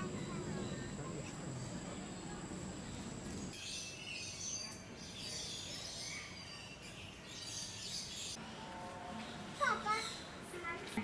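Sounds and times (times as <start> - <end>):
steady low background noise: 0.0 - 3.6
small birds chirping: 0.0 - 8.4.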